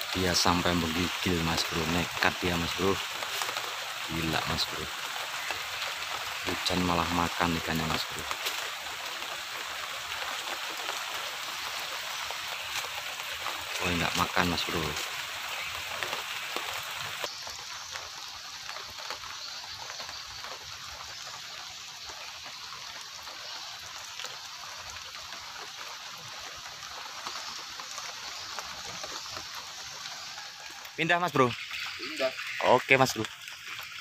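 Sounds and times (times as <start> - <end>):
raindrops ticking: 0.0 - 34.0
steady rain hiss: 0.0 - 34.0.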